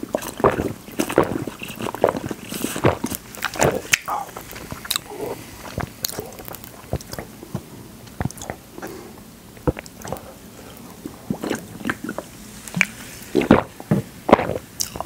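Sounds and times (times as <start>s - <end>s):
mouth chewing soft jelly: 0.0s - 15.0s
person gulping from bottle: 0.0s - 15.0s
wet mouth clicks and smacks: 0.2s - 8.9s.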